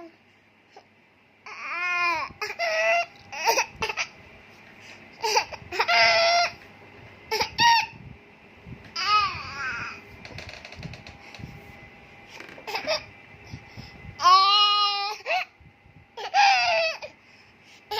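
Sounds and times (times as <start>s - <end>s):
baby giggling: 12.6s - 13.1s.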